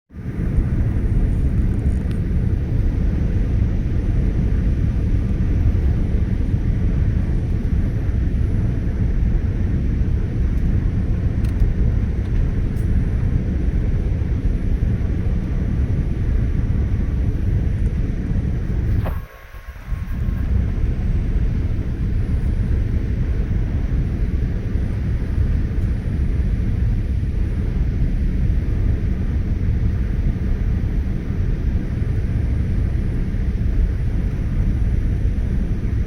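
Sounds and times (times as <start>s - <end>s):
airliner cabin engine rumble: 0.1s - 36.0s.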